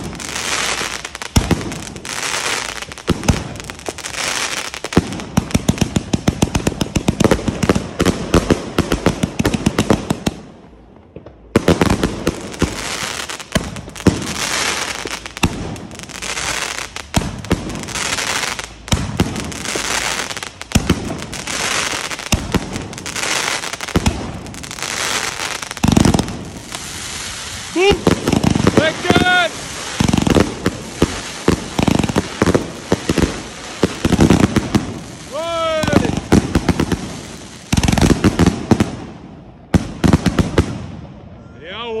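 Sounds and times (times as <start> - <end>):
firework crackling bursts: 0.0 - 41.0
firework shots: 0.0 - 41.3.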